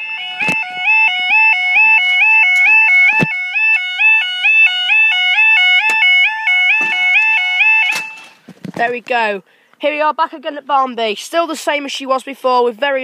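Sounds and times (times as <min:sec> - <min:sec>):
level crossing alarm two-tone yodel: 0:00.0 - 0:08.4.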